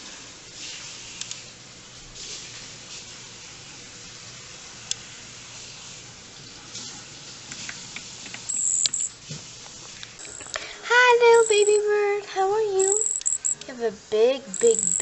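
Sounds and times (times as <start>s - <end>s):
small clicks: 7.6s - 9.1s, 12.8s - 13.6s
baby bird begging peeps: 11.4s - 11.8s, 12.8s - 13.6s, 14.5s - 15.0s.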